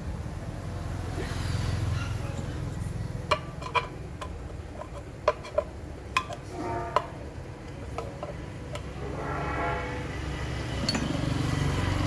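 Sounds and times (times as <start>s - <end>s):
steady low hum: 2.3s - 12.0s
metal clicks and clinks: 10.8s - 11.2s.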